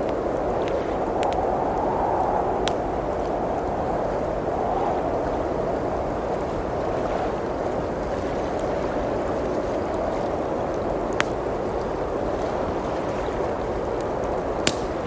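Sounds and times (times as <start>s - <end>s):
fire popping: 0.0s - 3.8s, 14.0s - 15.0s
wood fire crackling: 0.0s - 6.8s, 9.8s - 12.4s, 13.8s - 15.0s
blizzard wind rushing: 0.0s - 15.0s.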